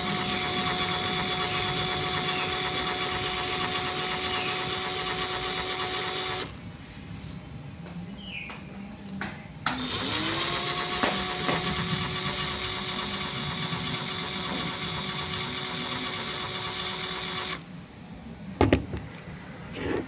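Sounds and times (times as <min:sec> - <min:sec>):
small motor whining: 0:00.0 - 0:06.6, 0:09.8 - 0:17.6.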